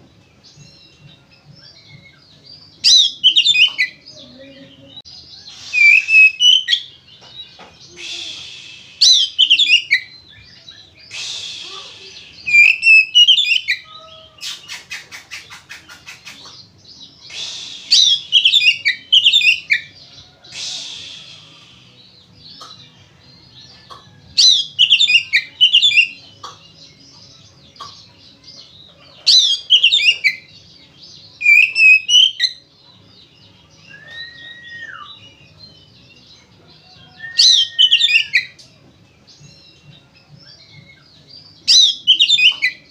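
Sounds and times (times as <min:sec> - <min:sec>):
bird singing fast phrases: 0:00.6 - 0:07.2, 0:07.8 - 0:22.9, 0:24.4 - 0:28.6, 0:29.2 - 0:32.7, 0:37.1 - 0:38.6, 0:39.4 - 0:42.9
clear bird whistle: 0:05.4 - 0:06.9, 0:07.9 - 0:10.3, 0:11.1 - 0:15.4, 0:17.3 - 0:19.9, 0:20.5 - 0:22.0, 0:31.4 - 0:32.6, 0:33.8 - 0:35.2, 0:37.1 - 0:38.6
harsh rasping bird notes: 0:05.4 - 0:07.2, 0:07.8 - 0:23.2.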